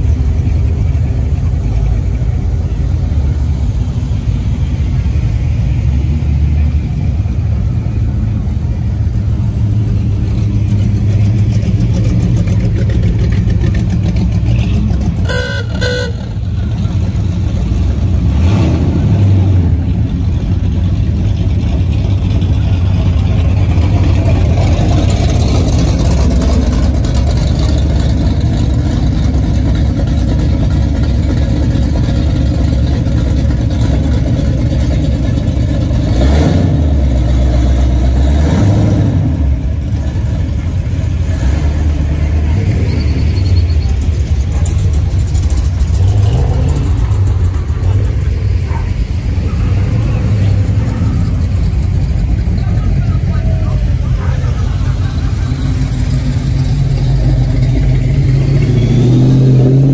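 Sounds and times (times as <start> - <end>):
cars cruising past: 0.0 - 59.9
car horn toots: 14.5 - 16.6
engine revving: 17.8 - 20.0, 33.5 - 59.9.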